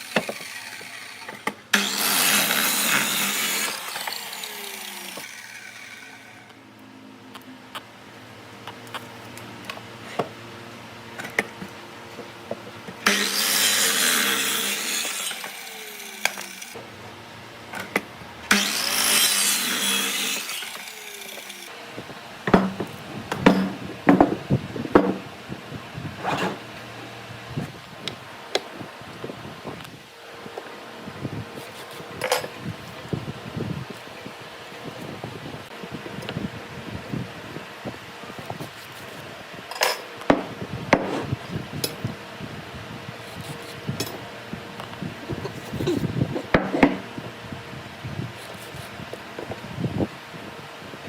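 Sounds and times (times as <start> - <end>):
power tool cutting wood: 0.0 - 6.7, 12.9 - 17.0, 17.7 - 21.8
steady machine hum: 0.0 - 38.3.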